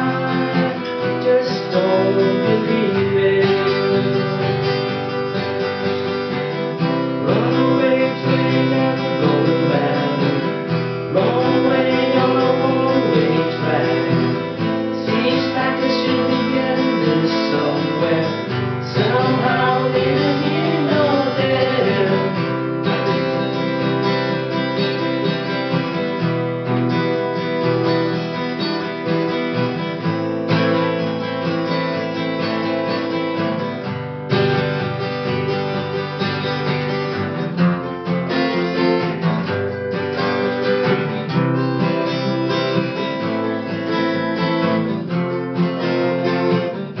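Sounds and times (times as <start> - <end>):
person singing: 0.0 - 4.8, 6.8 - 23.1
acoustic guitar strumming: 0.0 - 47.0.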